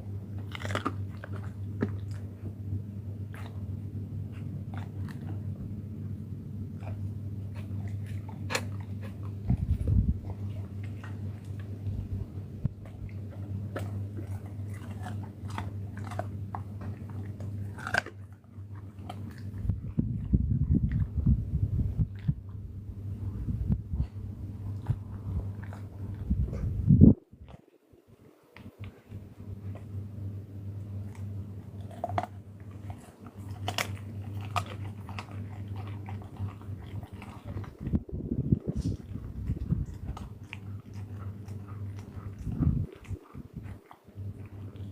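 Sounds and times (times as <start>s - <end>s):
animal chewing and crunching food: 0.0s - 30.0s, 30.8s - 44.9s
low steady hum: 0.0s - 44.9s.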